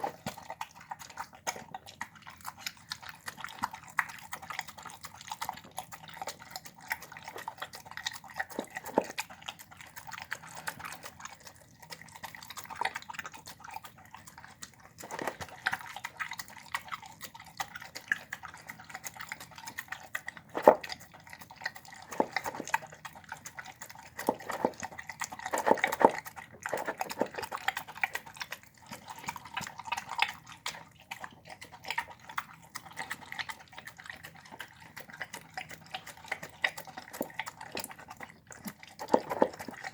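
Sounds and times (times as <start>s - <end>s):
dog chewing wetly: 0.0s - 39.9s.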